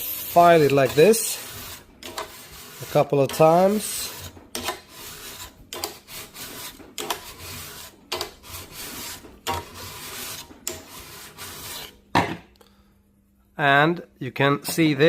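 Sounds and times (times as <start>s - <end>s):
file rasping on steel bar: 0.0s - 12.0s.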